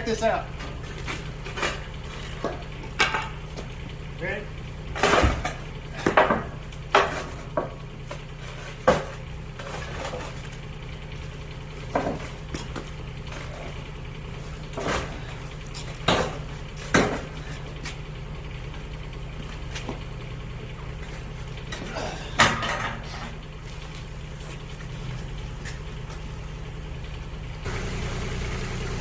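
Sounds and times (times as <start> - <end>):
engine idling: 0.0 - 29.0
metallic clanks and knocks: 0.5 - 3.8, 4.9 - 10.6, 11.8 - 13.8, 14.6 - 17.6, 20.8 - 23.4.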